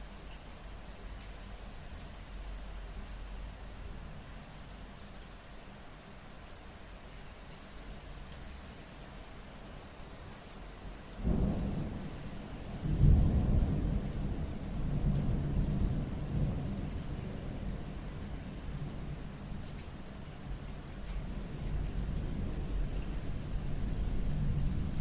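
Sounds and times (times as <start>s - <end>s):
steady rain: 0.0s - 25.0s
thunder rumbling: 11.2s - 17.8s.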